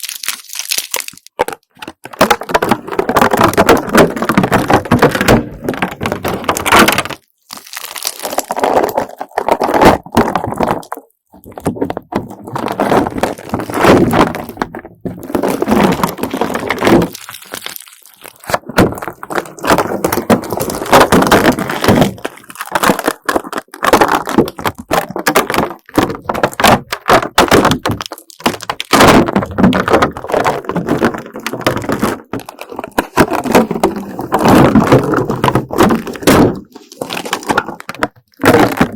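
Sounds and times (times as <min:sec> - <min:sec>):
beaded slime crackling when peeled: 0:00.0 - 0:01.4, 0:17.1 - 0:18.5.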